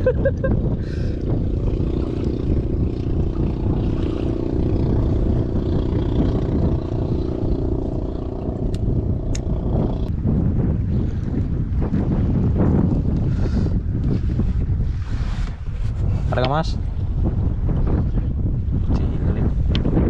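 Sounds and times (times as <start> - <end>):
sea noise: 0.0 - 15.8
boat engine running: 0.0 - 20.0
wind: 0.0 - 20.0.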